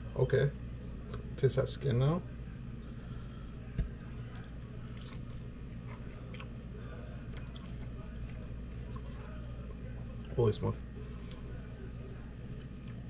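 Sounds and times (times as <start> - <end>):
steady low room hum: 0.0 - 13.0
person biting and chewing: 4.8 - 6.6.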